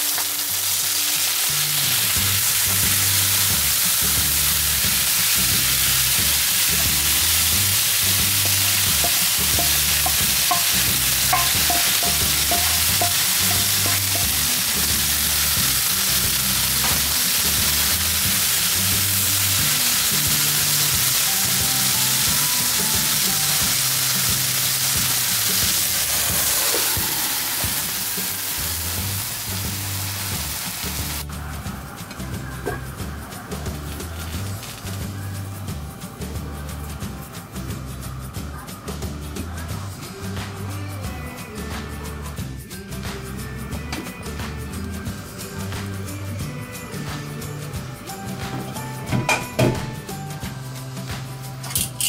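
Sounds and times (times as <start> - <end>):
steak sizzling in a frying pan: 0.0 - 38.7
background music with bass line: 0.0 - 52.0.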